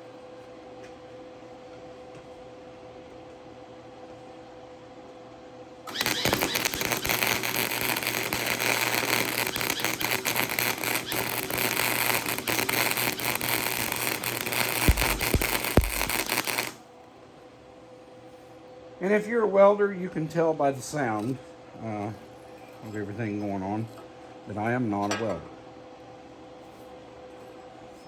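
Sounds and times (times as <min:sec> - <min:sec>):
welder arc crackling: 0:05.9 - 0:16.8
welding pops: 0:05.9 - 0:16.8.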